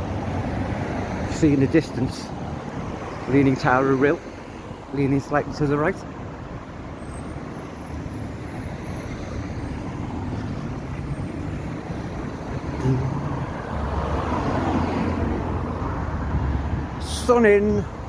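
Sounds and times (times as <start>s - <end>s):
road vehicles passing: 0.0s - 18.0s
low engine hum: 10.0s - 16.8s.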